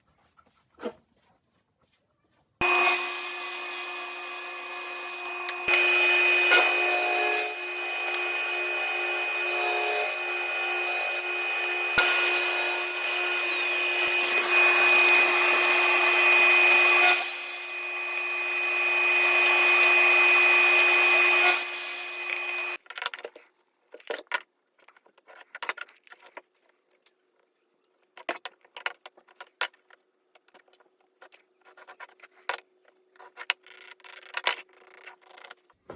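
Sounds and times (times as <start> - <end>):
power tool cutting wood: 2.6 - 22.8.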